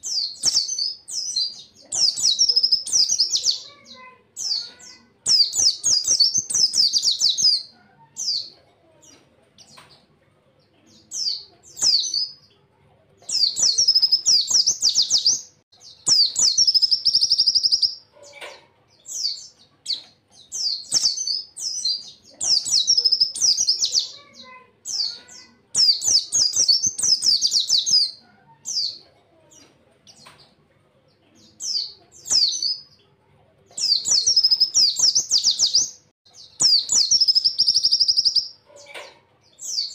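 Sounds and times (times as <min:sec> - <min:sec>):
bird twittering song: 0:00.0 - 0:10.1, 0:13.2 - 0:30.6, 0:31.3 - 0:39.9.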